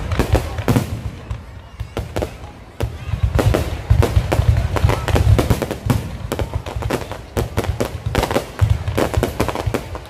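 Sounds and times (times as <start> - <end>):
fireworks bangs and booms: 0.0 - 10.0.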